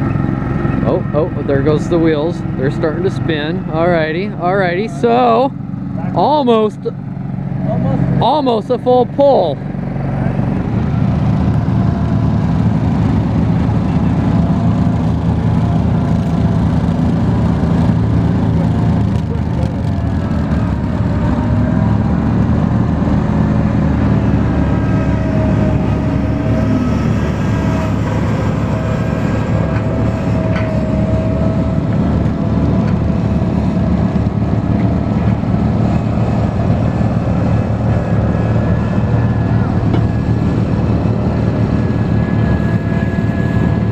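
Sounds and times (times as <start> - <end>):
garden tractor engine running: 0.0 - 43.9
faint wavering whine: 24.2 - 34.6, 35.3 - 43.9.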